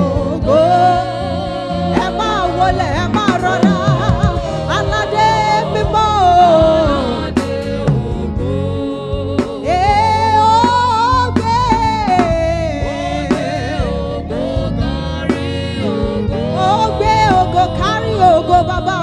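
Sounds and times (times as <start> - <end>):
band accompaniment: 0.0 - 19.0
person singing gospel chorus: 0.0 - 19.0
drum strokes: 2.0 - 8.5.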